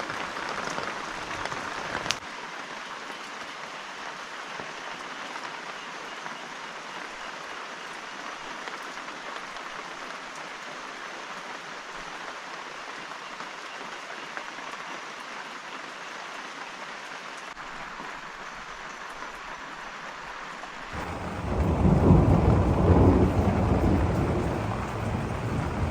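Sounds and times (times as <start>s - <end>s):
steady rain falling: 0.0s - 25.9s
low rumble of thunder: 21.0s - 25.9s.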